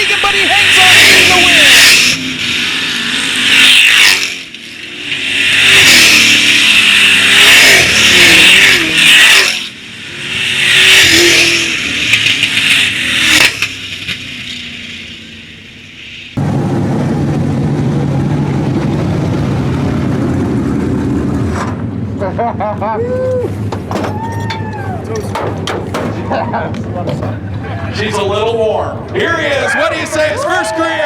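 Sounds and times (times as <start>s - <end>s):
race trucks revving past: 0.0s - 15.6s
steady low engine hum: 16.4s - 31.0s.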